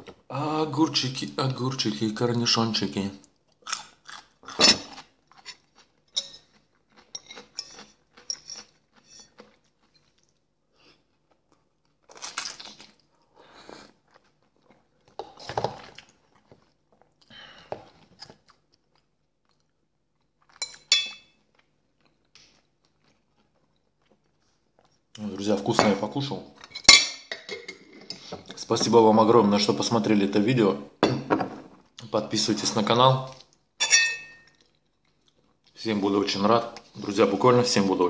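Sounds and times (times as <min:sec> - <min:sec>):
crunchy pickle chewing: 0:03.3 - 0:17.3, 0:17.9 - 0:25.3.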